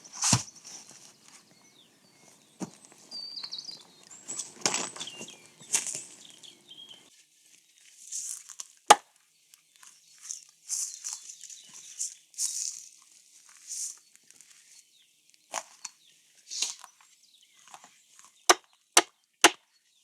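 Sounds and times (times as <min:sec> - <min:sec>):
bird chirps: 0:00.0 - 0:07.1
rustling and crinkling handling: 0:00.0 - 0:08.9, 0:09.5 - 0:18.8.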